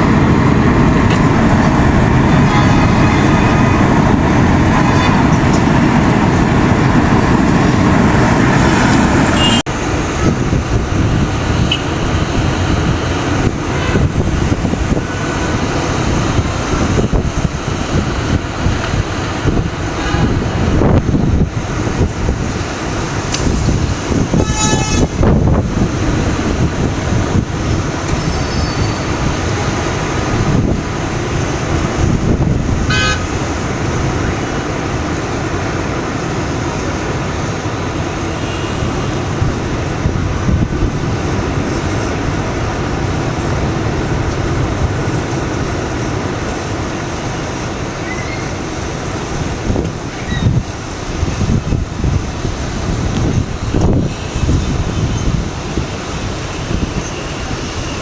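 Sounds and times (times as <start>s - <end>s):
tornado winds roaring: 0.0s - 58.0s.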